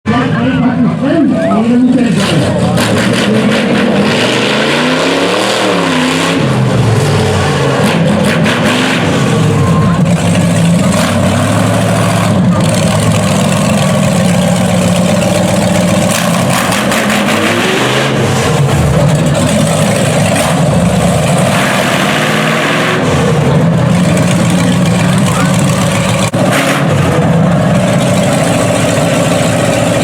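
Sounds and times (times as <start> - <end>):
vehicle engine idling and revving: 0.1 - 30.0.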